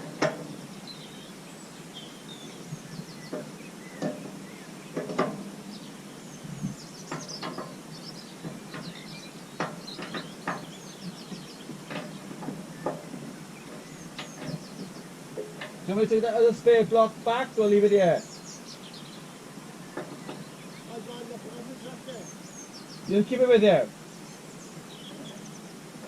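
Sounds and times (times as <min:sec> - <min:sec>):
tools knocking on metal frame: 0:00.0 - 0:00.6, 0:03.3 - 0:05.6, 0:07.1 - 0:07.8, 0:08.4 - 0:09.0, 0:09.6 - 0:15.8
small birds chirping: 0:00.0 - 0:26.0.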